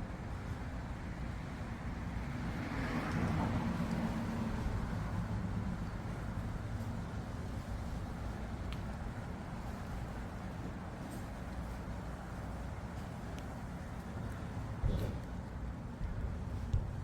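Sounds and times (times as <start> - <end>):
low rumble of traffic: 0.0 - 17.0
car passing: 1.5 - 8.0.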